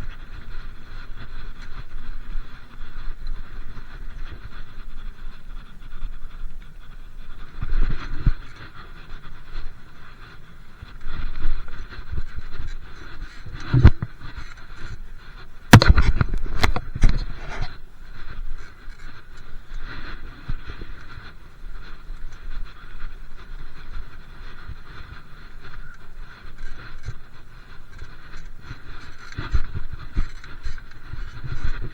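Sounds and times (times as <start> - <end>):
bike rattling: 0.0 - 31.9
wind on microphone: 0.0 - 31.9
bike knocks and clatters: 15.7 - 17.8, 27.9 - 31.9.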